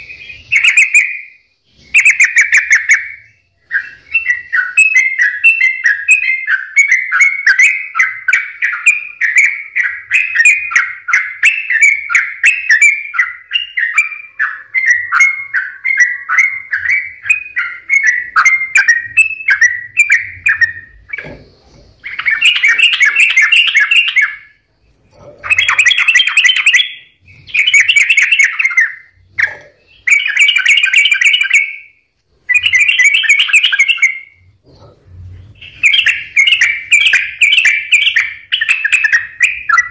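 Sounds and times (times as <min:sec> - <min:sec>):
bird bubbling song: 0:00.0 - 0:39.9.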